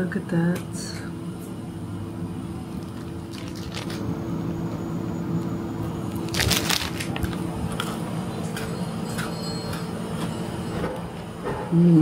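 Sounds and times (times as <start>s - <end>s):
biscuit crunching: 2.6s - 4.1s, 6.0s - 8.1s.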